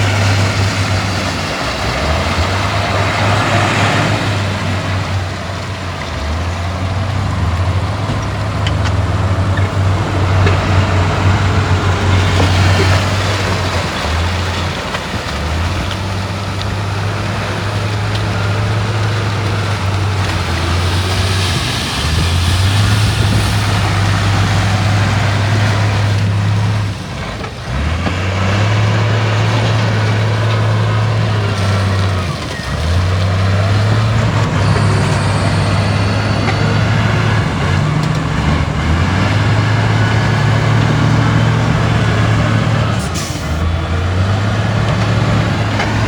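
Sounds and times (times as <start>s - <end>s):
deep diesel engine drone: 0.0s - 46.0s
steady mechanical noise: 31.4s - 44.0s.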